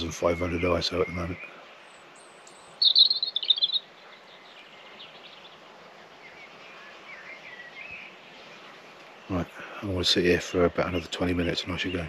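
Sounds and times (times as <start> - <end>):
rapid high bird chirping: 0.0 - 9.6
lower bird warbling calls: 0.0 - 12.0
steady outdoor hiss: 0.0 - 12.0.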